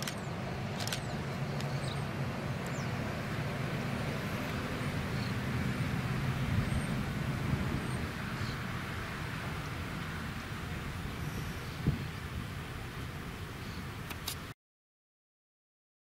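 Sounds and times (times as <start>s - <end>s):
sharp clicks: 0.0s - 1.7s, 14.1s - 14.4s
locomotive engine drone: 0.0s - 14.2s.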